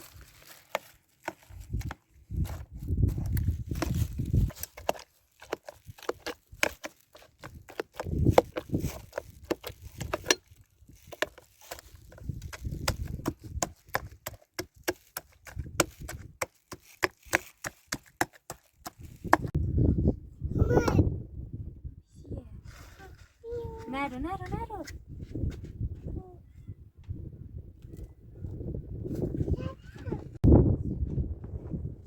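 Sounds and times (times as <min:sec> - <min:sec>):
dry wood cracking and snapping: 0:00.0 - 0:19.5.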